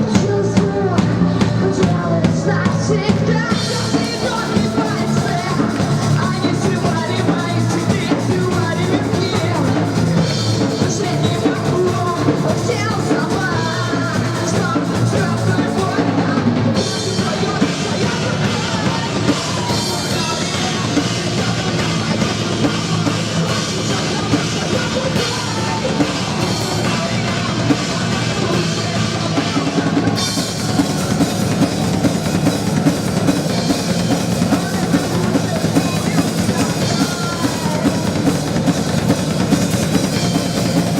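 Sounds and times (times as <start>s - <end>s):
rock band playing: 0.0s - 40.9s.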